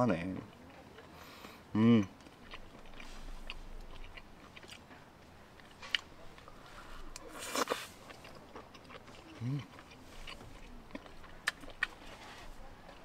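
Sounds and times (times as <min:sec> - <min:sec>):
person chewing food: 0:00.5 - 0:13.0
wet mouth clicks: 0:07.1 - 0:12.0.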